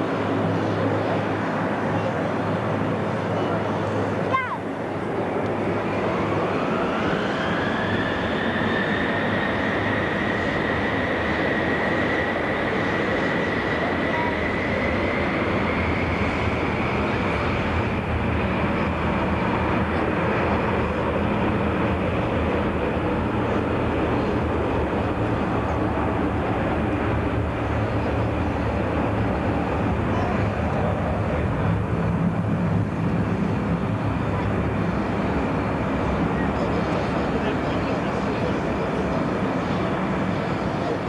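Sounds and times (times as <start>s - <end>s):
high engine whine: 0.0s - 41.0s
jet engines roaring: 0.0s - 41.0s.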